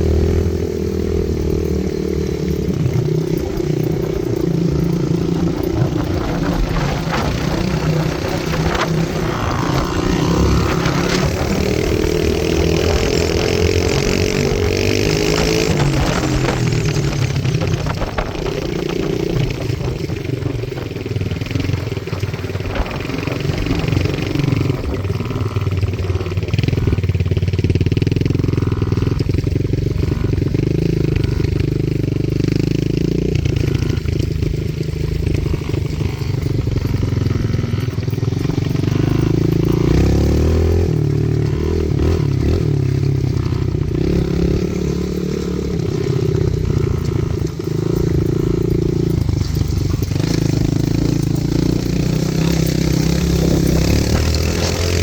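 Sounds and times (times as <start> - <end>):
small motorbike engines revving: 0.0 - 55.0.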